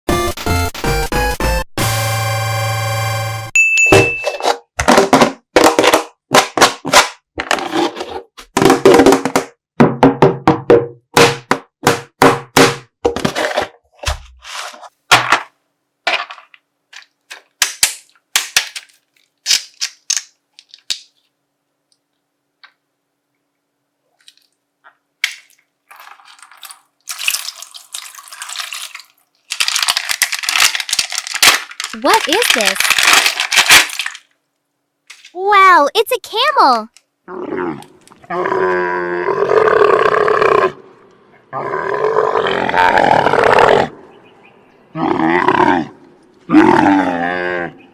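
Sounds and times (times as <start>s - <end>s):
plastic bag crinkling: 18.1s - 21.2s, 25.4s - 34.4s
slime popping and squelching: 25.3s - 34.2s.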